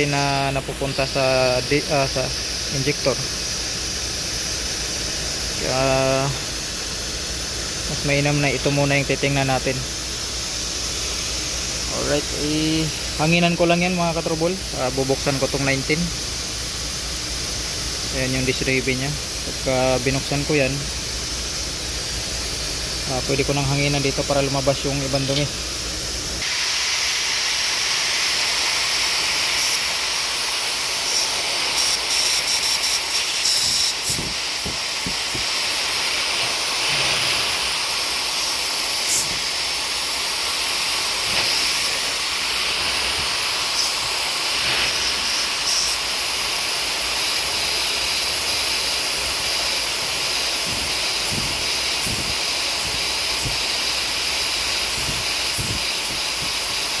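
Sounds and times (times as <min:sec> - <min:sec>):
compressed air hissing: 0:00.0 - 0:57.0
sputtering spurts: 0:49.9 - 0:57.0.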